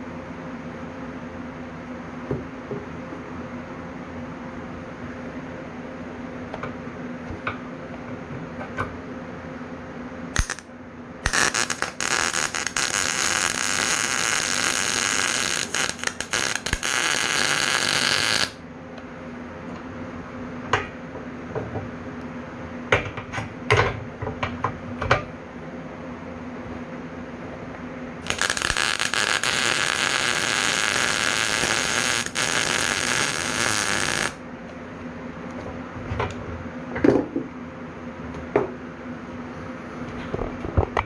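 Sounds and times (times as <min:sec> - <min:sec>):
steady hum: 0:10.3 - 0:20.5, 0:28.0 - 0:35.4
welder sizzling crackle: 0:10.4 - 0:18.6, 0:28.2 - 0:34.4.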